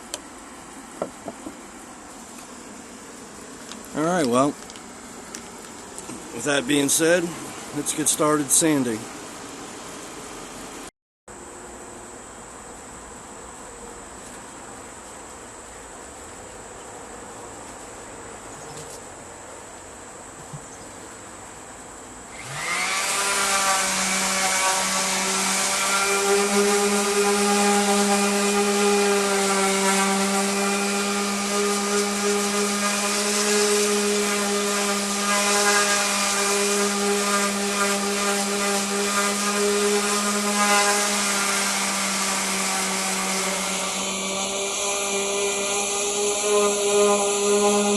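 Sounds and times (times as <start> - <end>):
electric power sander running: 22.3 - 47.9.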